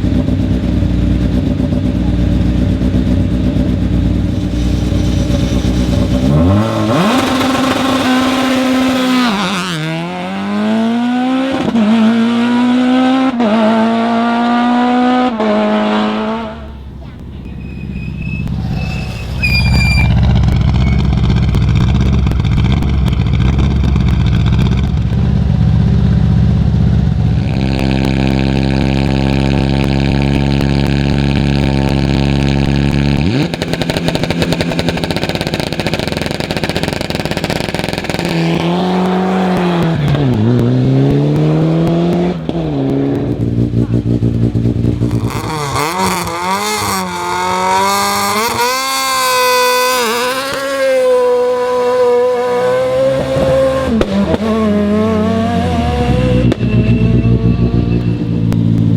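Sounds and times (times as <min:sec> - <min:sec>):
rally car engine revving: 0:00.0 - 0:58.9.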